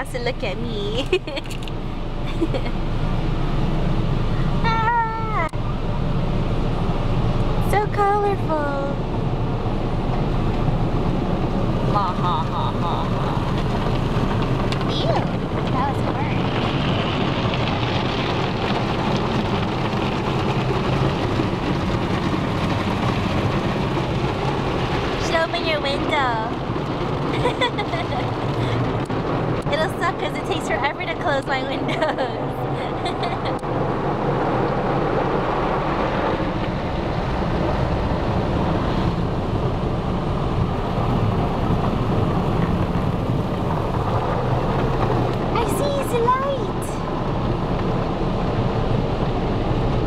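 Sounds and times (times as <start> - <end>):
car wash jets drumming on car: 0.0 - 50.0.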